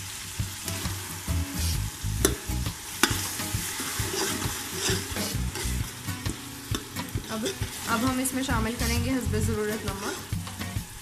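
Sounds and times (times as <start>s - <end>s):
onions sizzling in hot oil: 0.0s - 11.0s
metal spoon scraping a pot: 1.6s - 8.3s, 9.9s - 10.6s.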